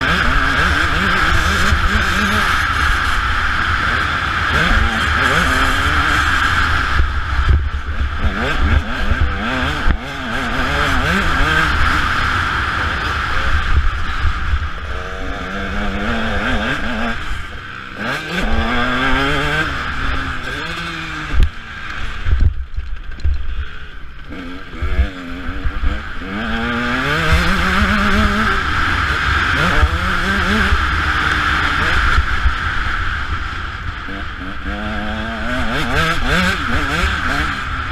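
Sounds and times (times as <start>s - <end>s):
dirt bike engine revving: 0.0s - 37.9s
wind rumble on microphone: 18.4s - 23.6s.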